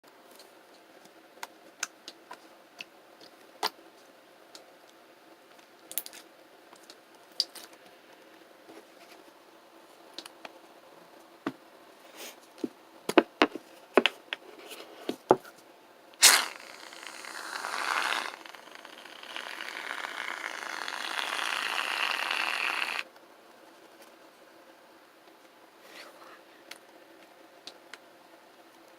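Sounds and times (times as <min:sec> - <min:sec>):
aerosol can spraying: 0:16.2 - 0:23.0.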